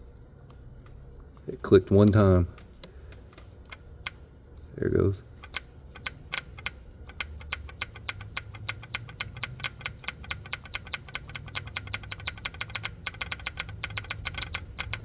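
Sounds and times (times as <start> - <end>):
solenoid clicking rapidly: 5.4 - 15.0.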